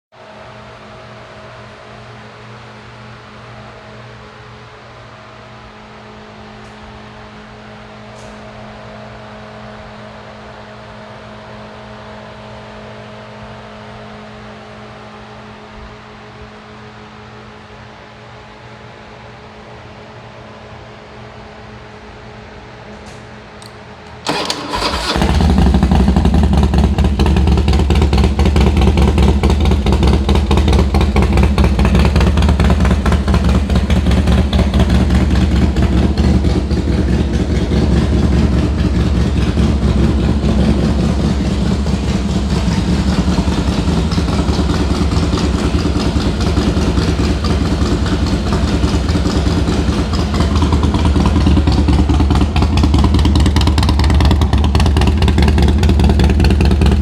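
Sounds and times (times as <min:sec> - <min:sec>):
motorcycle engine starting and idling: 0:22.9 - 0:57.0.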